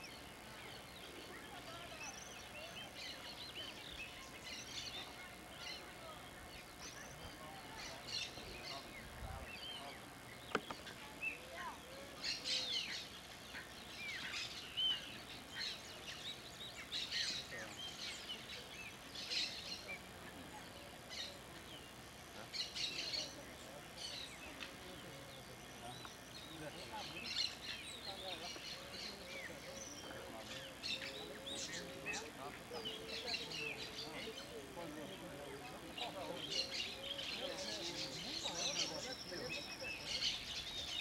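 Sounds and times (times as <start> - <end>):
birds chirping: 0.0 - 41.0
faint outdoor background noise: 0.0 - 41.0
sharp click: 10.5 - 10.9.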